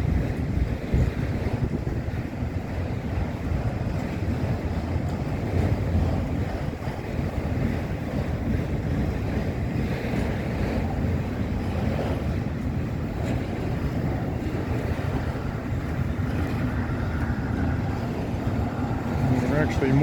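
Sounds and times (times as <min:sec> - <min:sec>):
freight train wheels rumbling: 0:00.0 - 0:20.0.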